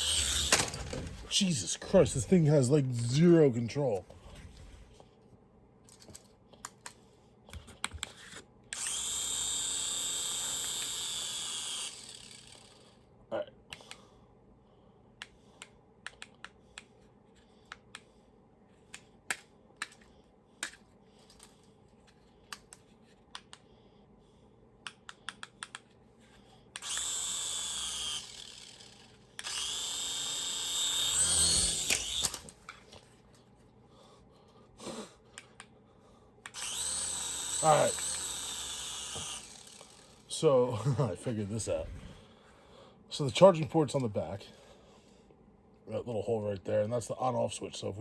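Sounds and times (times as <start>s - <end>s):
propeller motor whirring: 0.0s - 3.2s, 26.8s - 32.5s, 36.6s - 40.5s.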